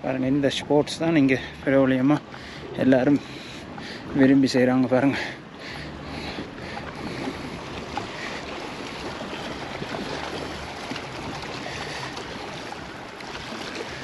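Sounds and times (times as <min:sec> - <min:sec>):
lake water: 0:00.0 - 0:14.0
wind: 0:00.0 - 0:14.0.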